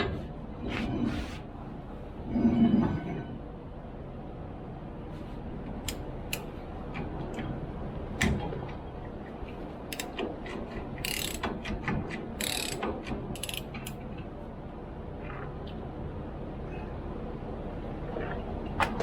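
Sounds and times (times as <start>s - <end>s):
metal tools clicking and clinking: 11.0s - 11.5s.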